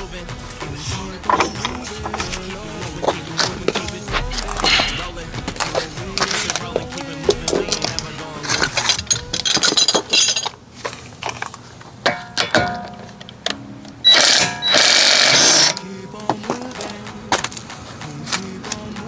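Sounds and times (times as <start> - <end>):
loud hiss: 0.0 - 9.6
metal tools clinking: 7.3 - 13.4.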